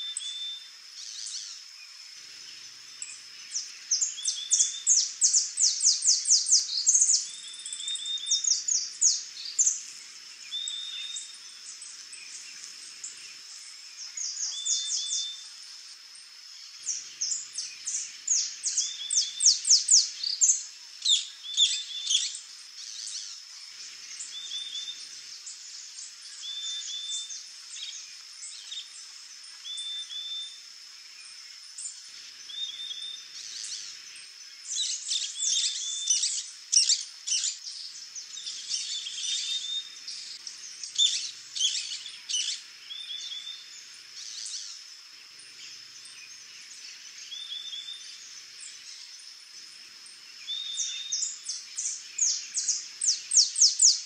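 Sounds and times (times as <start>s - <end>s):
birds chirping: 31.8s - 44.8s.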